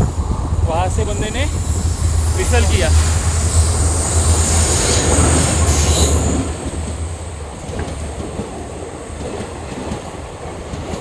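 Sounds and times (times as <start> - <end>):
wheels squealing on rails: 0.0 - 6.8
passing train rumble: 0.0 - 11.0.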